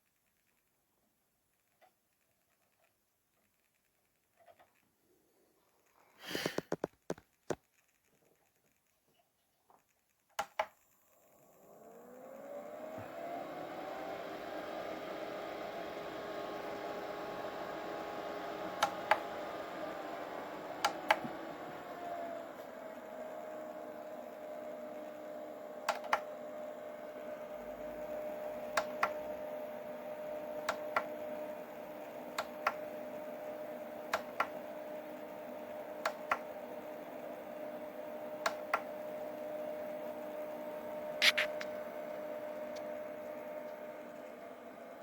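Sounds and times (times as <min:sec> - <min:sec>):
small fan motor humming: 0:10.5 - 0:45.0.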